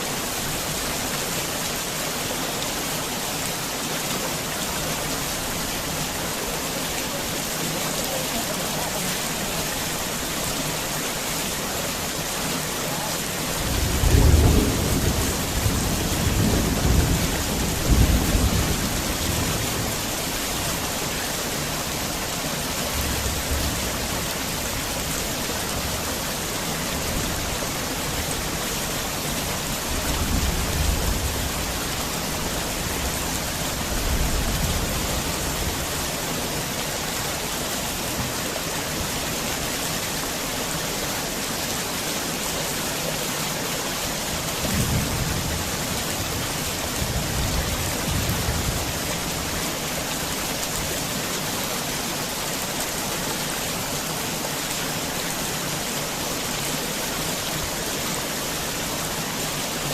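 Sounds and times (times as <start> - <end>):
heavy rain falling: 0.0 - 59.9
thunder rumbling: 13.6 - 20.0.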